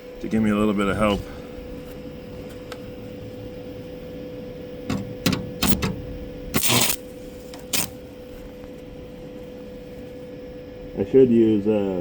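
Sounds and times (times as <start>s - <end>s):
steady electrical hum: 0.0s - 12.0s
welding arc crackling: 6.5s - 8.2s.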